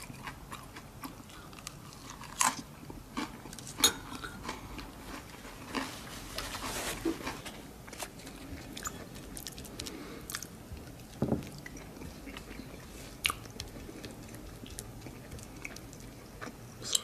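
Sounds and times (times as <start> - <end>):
person chewing and eating: 0.0 - 17.0.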